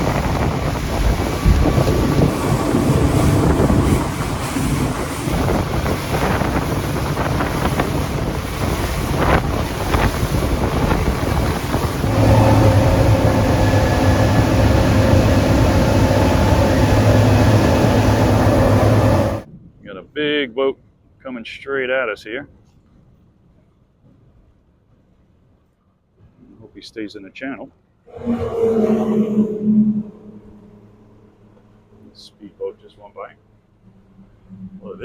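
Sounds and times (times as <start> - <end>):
pitched engine hum: 0.0 - 8.6, 10.6 - 19.5, 28.1 - 35.0
rushing water: 0.0 - 19.4
engine drone: 0.0 - 19.5, 28.1 - 35.0
wind buffeting microphone: 0.0 - 20.0.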